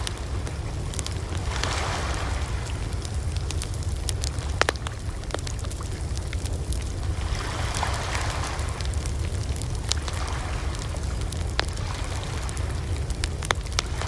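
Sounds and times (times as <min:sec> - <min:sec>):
fire crackling and popping: 0:00.0 - 0:14.0
fire low rumble and hiss: 0:00.0 - 0:14.0.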